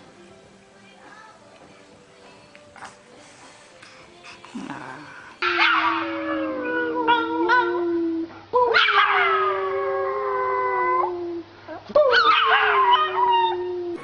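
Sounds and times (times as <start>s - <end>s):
dog howling: 4.7s - 11.4s, 12.1s - 14.0s.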